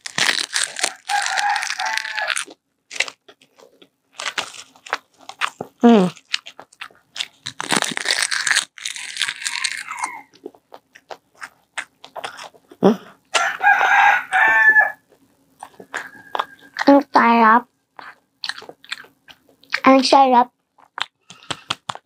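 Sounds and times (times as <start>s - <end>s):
crunching and chewing seaweed snack: 0.0s - 17.0s, 18.0s - 19.8s, 20.8s - 22.0s
girl making voiced sound: 5.8s - 6.2s, 16.8s - 17.6s.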